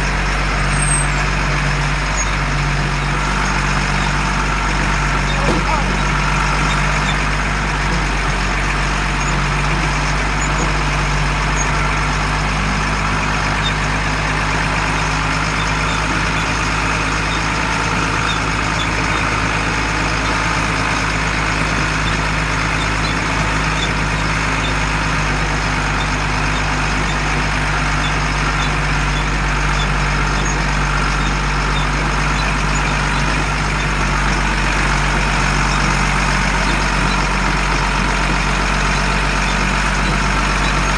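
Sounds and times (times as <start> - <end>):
diesel truck engine running: 0.0 - 40.9.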